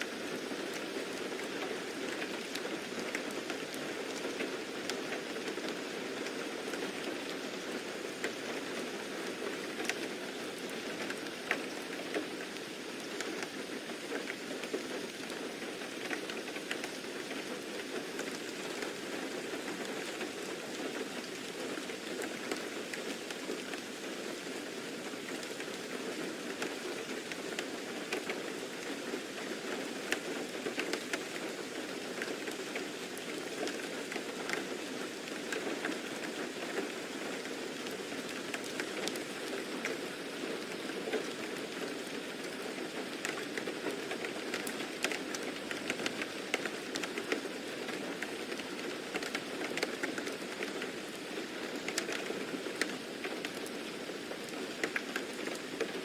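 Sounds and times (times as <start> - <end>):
steady rain falling: 0.0 - 56.0
sharp raindrop ticks: 9.7 - 15.4, 25.3 - 50.9, 51.7 - 56.0.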